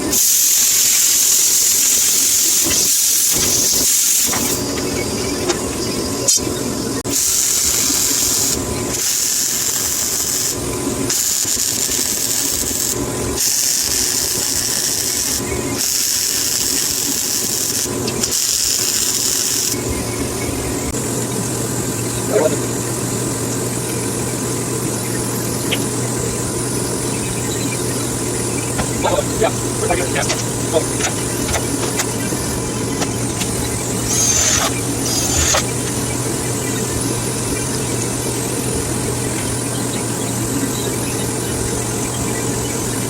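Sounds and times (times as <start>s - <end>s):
power tool cutting steel: 7.1s - 19.8s, 28.8s - 36.1s
steady low hum: 19.7s - 42.9s.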